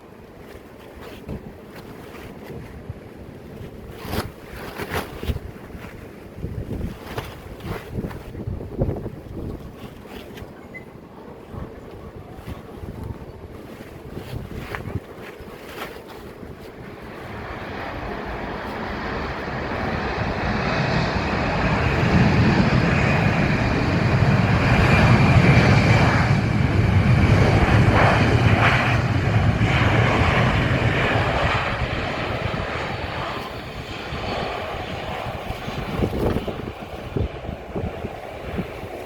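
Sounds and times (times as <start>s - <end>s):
airliner engine rumble: 0.0s - 39.0s
high engine whine: 17.3s - 36.4s.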